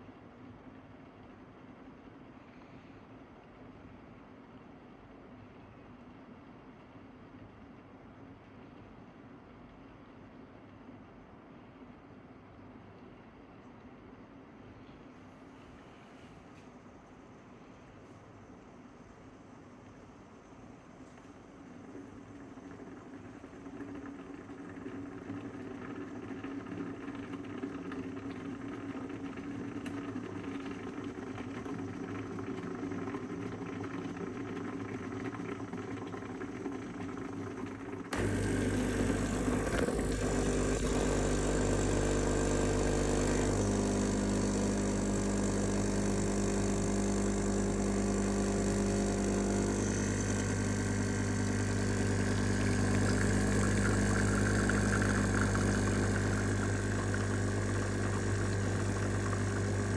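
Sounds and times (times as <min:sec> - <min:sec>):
coffee machine humming: 0:21.0 - 0:59.9
coffee machine pump buzzing: 0:21.8 - 0:59.9.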